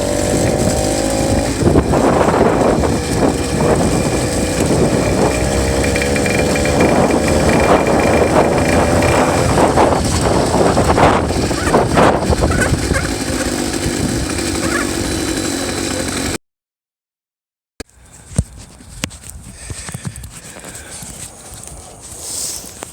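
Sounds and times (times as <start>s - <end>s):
two-stroke bicycle engine running: 0.0s - 16.4s.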